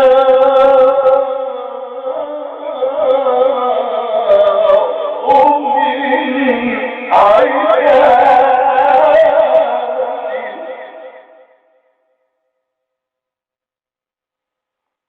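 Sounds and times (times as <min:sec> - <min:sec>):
man reciting melodically: 0:00.0 - 0:11.5.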